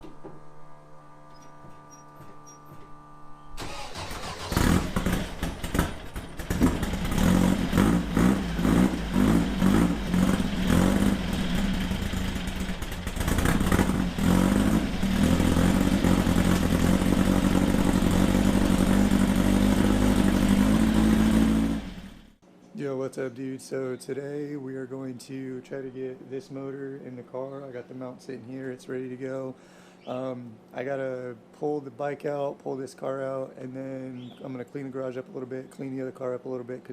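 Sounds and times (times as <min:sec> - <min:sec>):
engine starting and revving: 0:03.6 - 0:22.4.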